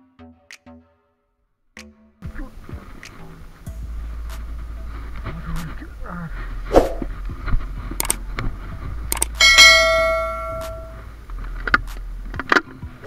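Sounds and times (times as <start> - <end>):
clicks: 7.9 - 8.5, 9.1 - 12.7
bell ding: 9.4 - 11.0.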